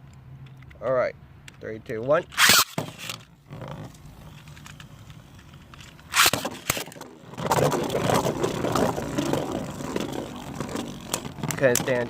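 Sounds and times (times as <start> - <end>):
spinning tops whirring: 2.3 - 3.2, 6.0 - 12.0
spinning tops clattering and scraping: 2.3 - 12.0.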